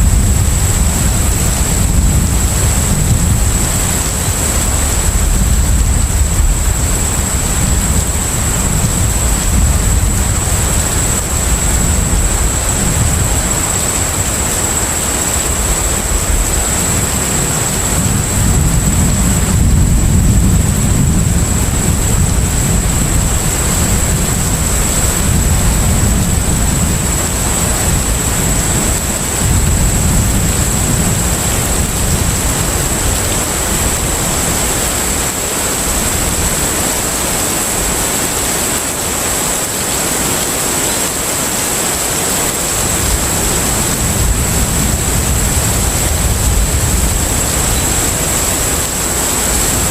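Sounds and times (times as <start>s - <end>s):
deep engine rumble: 0.0s - 35.3s
rushing wash of water and wind: 0.0s - 49.9s.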